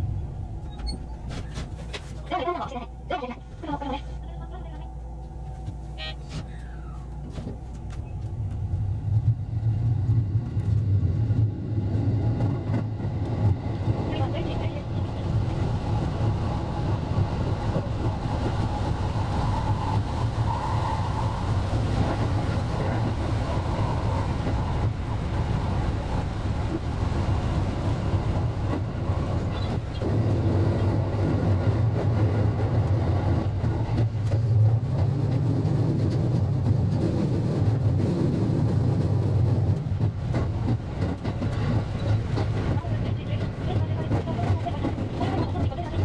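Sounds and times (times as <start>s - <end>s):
electric train rumbling on track: 0.0s - 46.0s.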